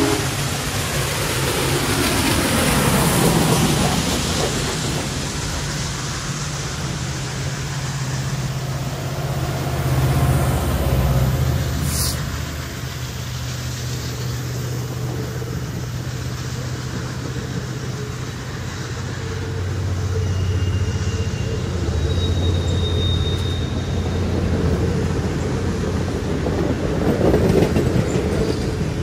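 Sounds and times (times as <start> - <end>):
low engine hum: 0.0 - 22.1
train wheel and rail noise: 0.0 - 29.0
brief hiss: 11.8 - 12.4.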